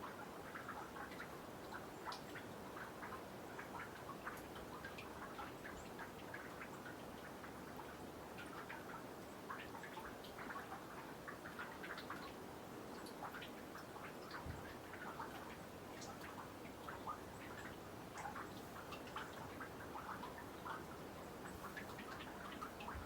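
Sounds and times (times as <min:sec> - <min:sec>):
faint steady hiss: 0:00.0 - 0:23.0
water dripping into pond: 0:00.0 - 0:23.0.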